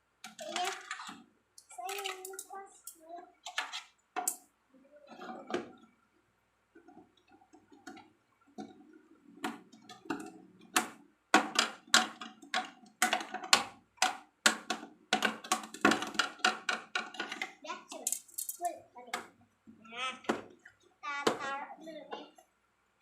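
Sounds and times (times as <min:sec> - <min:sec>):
plastic balls clacking: 0:00.2 - 0:04.4, 0:06.8 - 0:19.4.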